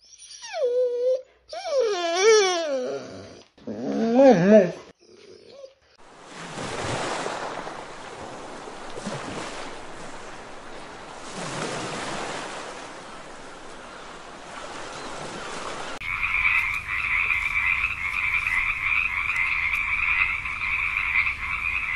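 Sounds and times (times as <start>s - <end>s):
sea surf washing on sand: 6.0s - 16.6s.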